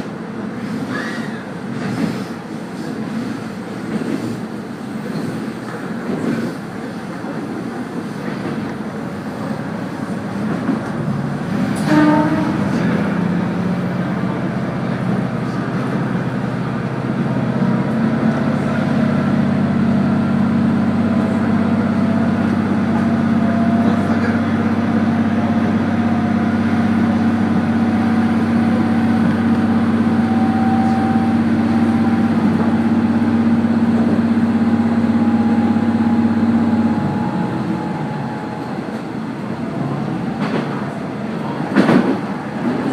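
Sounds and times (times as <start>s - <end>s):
diesel engine drone: 11.0s - 41.6s.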